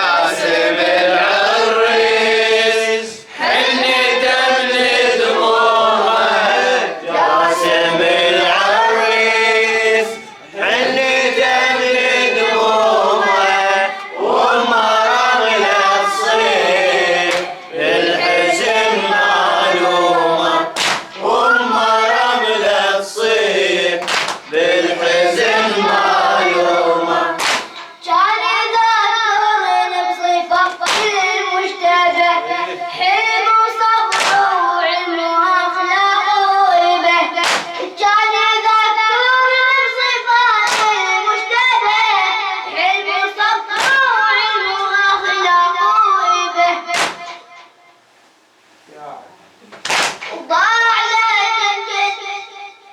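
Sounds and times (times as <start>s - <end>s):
male voices chanting: 0.0s - 27.7s
boy chanting: 0.0s - 47.8s, 49.9s - 52.9s
hand slaps on chest: 20.8s - 21.2s, 24.0s - 24.5s, 27.4s - 27.8s, 30.8s - 31.2s, 34.1s - 34.5s, 37.4s - 37.9s, 40.7s - 41.0s, 43.8s - 44.1s, 46.9s - 47.4s, 49.8s - 50.4s.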